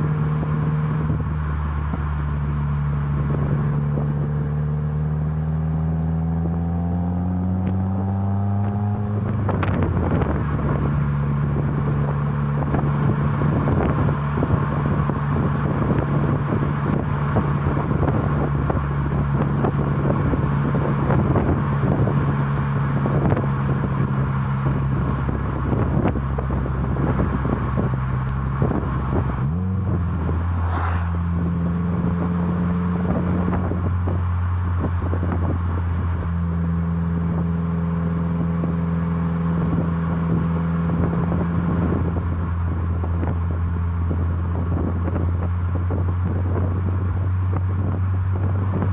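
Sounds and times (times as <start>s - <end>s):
car engine and exhaust running: 0.0s - 48.9s
wind buffeting on microphone: 5.4s - 37.5s, 38.4s - 48.9s.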